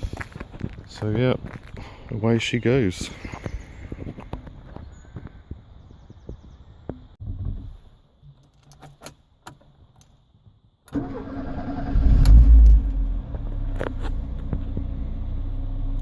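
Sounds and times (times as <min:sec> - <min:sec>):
car engine starting and idling: 0:10.9 - 0:16.0.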